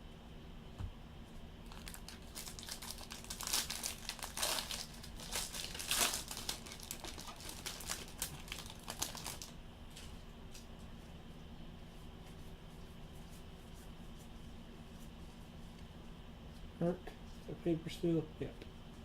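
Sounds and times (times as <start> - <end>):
foil wrapper crinkling: 1.6 - 10.7.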